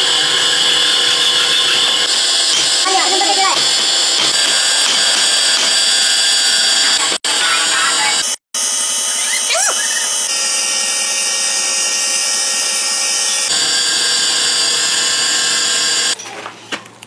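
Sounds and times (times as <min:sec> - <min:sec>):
power tool whining: 0:00.0 - 0:16.2.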